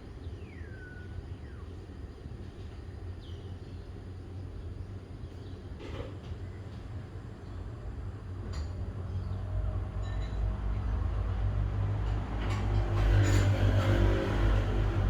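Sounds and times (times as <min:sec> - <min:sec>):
vehicle engine passing by: 0:09.3 - 0:15.0.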